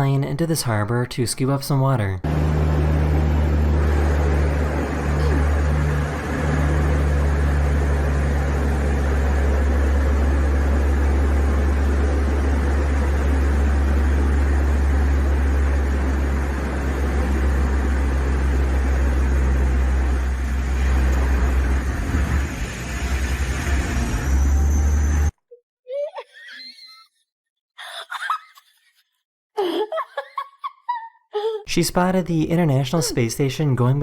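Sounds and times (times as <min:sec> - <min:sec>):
plane engines droning: 0:02.2 - 0:25.3.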